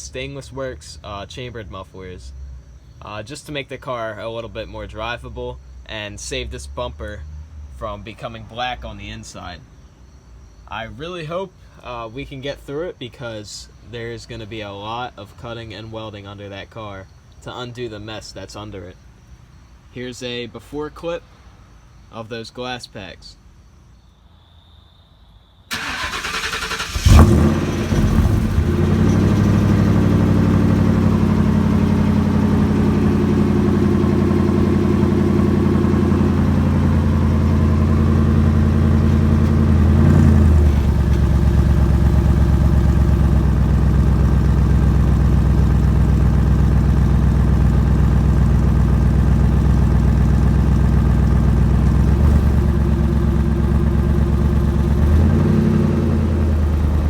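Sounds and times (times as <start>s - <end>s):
starter cranking: 25.7s - 29.3s
car engine idling: 25.7s - 57.0s.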